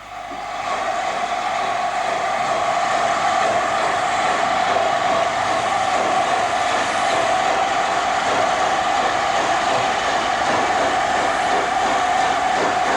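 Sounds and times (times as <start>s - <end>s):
steam train rushing: 0.0s - 12.9s.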